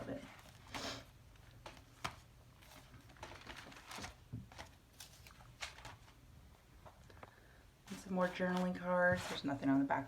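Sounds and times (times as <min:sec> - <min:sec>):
paper rustling and tapping: 0:00.4 - 0:06.2.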